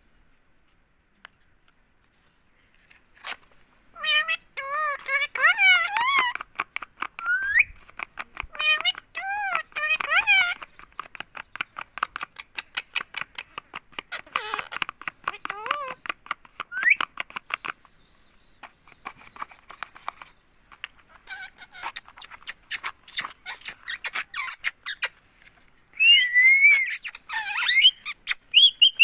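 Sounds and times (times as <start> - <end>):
parakeet chirps: 4.0 - 6.4, 7.2 - 16.0, 16.7 - 17.6, 18.5 - 25.2, 26.0 - 29.0
parakeet wavering calls: 4.0 - 6.4, 7.2 - 7.8, 8.5 - 10.7, 14.2 - 16.0, 21.1 - 25.1, 26.0 - 29.0
parakeet clicking: 4.0 - 17.9.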